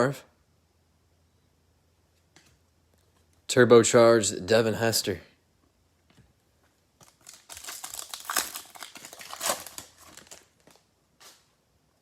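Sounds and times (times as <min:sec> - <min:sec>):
plastic wrapper crinkling: 0:07.0 - 0:11.4.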